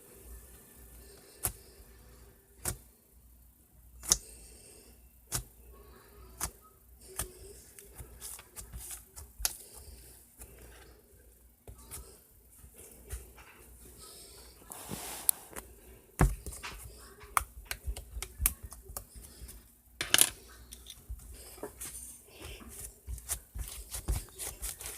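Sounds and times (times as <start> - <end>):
slime crackles: 22.4 - 24.9.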